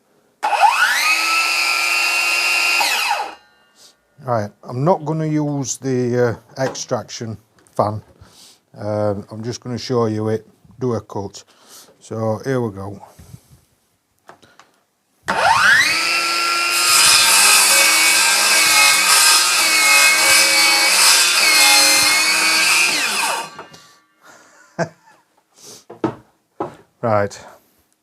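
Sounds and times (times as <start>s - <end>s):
circular saw cutting wood: 0.4s - 3.8s, 15.3s - 24.0s
circular saw whine: 0.4s - 3.8s, 15.3s - 23.7s.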